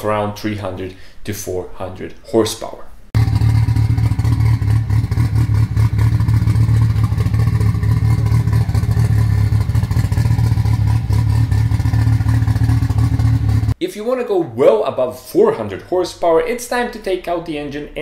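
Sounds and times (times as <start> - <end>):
car engine idling: 3.2 - 13.8.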